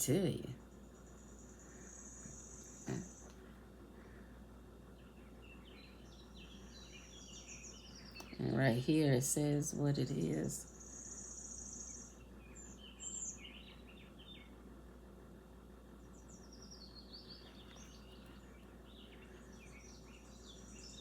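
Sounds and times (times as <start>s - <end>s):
bird chirping and twittering: 4.9s - 14.6s, 16.0s - 21.0s.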